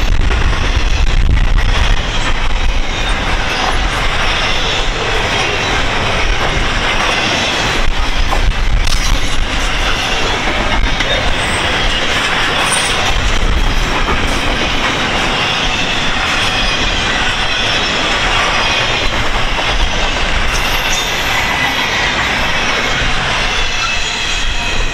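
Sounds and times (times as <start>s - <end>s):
train wheels rumbling on rail: 0.0s - 24.9s
faint wheel squeal: 15.3s - 24.9s.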